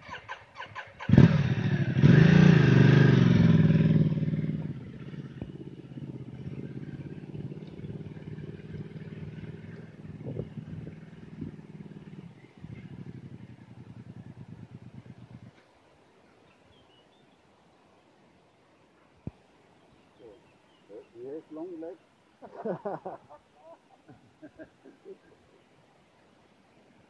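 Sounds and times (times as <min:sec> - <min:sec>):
motorcycle engine revving and idling: 0:01.0 - 0:15.6.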